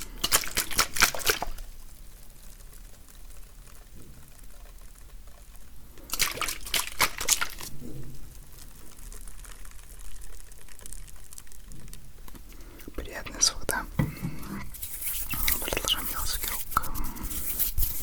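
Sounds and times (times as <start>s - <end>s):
wet liquid hand sounds: 0.0s - 2.0s, 5.9s - 18.0s
crisp crackling clicks: 0.0s - 13.8s, 14.6s - 18.0s.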